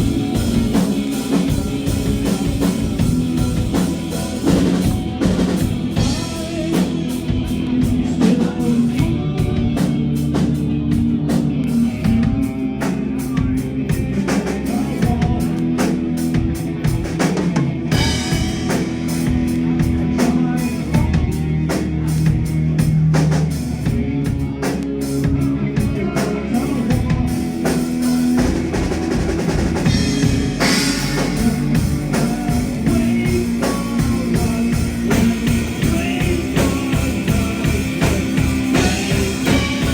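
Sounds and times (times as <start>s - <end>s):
person singing: 0.0s - 10.5s, 29.8s - 39.9s
live rock band playing: 0.0s - 39.9s.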